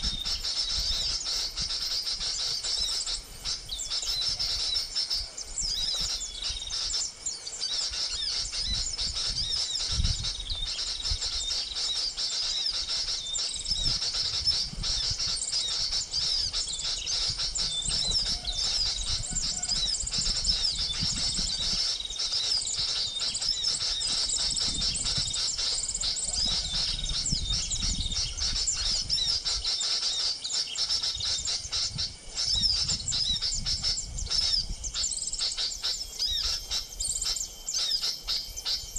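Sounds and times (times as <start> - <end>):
small birds twittering: 0.0 - 38.9.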